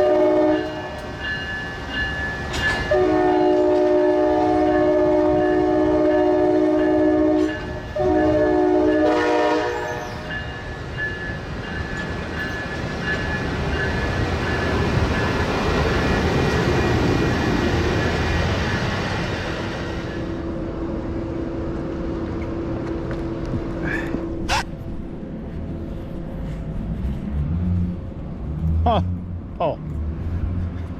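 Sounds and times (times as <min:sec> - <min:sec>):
locomotive air horn blasts: 0:00.0 - 0:01.0, 0:02.9 - 0:10.3
train rolling past: 0:00.0 - 0:30.9.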